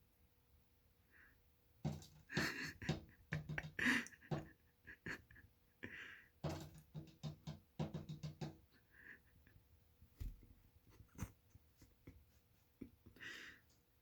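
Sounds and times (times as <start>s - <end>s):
bird pecking at window glass: 1.9s - 4.5s, 6.4s - 8.6s.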